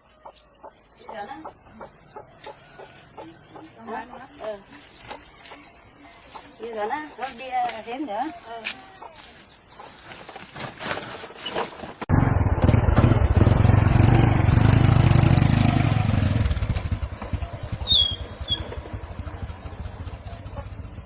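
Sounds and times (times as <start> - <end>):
small engine running loudly: 12.1 - 21.0.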